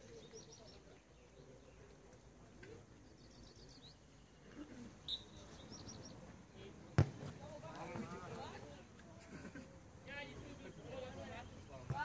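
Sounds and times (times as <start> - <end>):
small birds chirping: 0.0 - 6.6.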